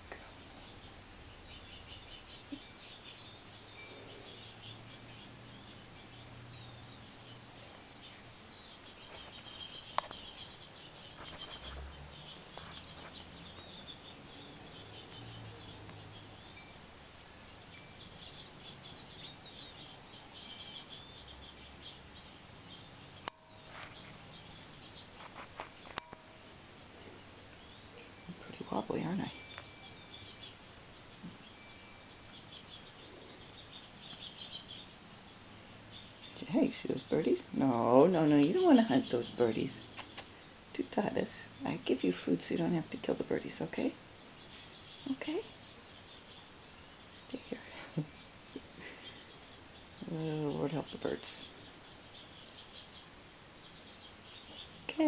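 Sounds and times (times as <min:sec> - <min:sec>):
insect trill: 0:00.0 - 0:36.7
small birds chirping: 0:00.0 - 0:55.0.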